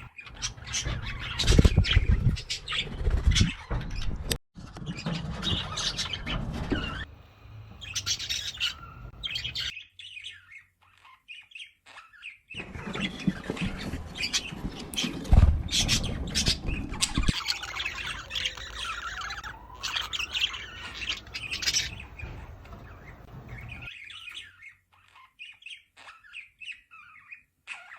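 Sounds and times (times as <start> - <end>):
budgerigars chirping: 7.7 - 27.9.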